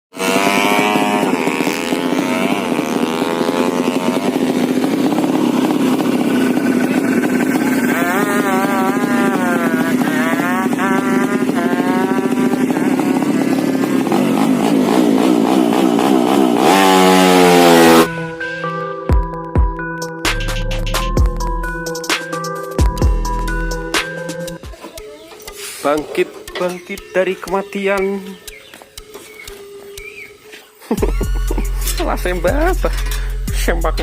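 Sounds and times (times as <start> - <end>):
motorcycle engine revving: 0.1 - 34.0
electronic music: 16.6 - 30.4, 31.0 - 34.0.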